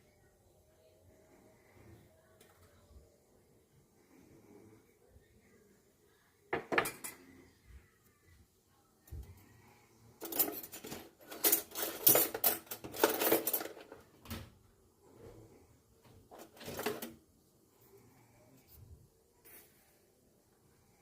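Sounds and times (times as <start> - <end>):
kitchenware clattering and scraping: 6.5 - 7.5, 10.1 - 14.1, 16.3 - 17.2.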